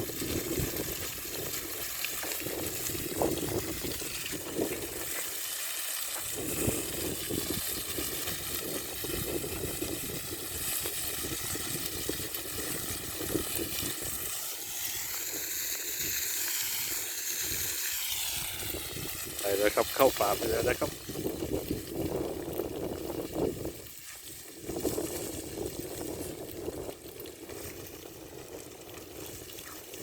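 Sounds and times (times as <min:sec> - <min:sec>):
wind buffeting microphone: 0:00.0 - 0:05.2, 0:06.2 - 0:14.3, 0:16.0 - 0:30.0.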